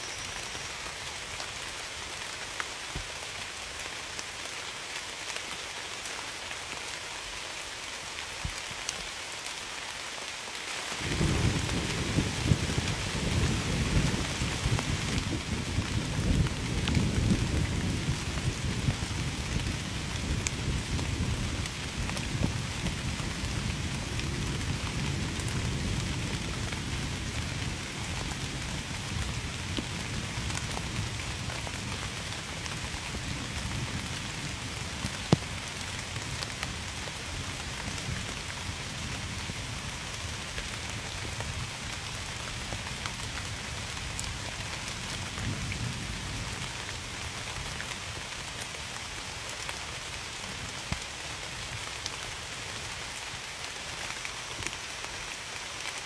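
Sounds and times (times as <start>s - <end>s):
heavy rain: 0.0s - 56.0s
low rumble of thunder: 11.0s - 35.1s.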